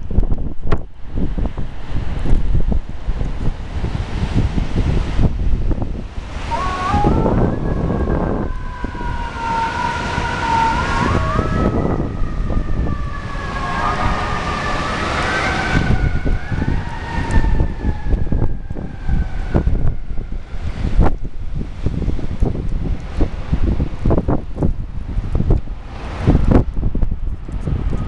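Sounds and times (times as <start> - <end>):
wind gusting on microphone: 0.0 - 28.0
emergency sirens wailing: 3.0 - 22.4.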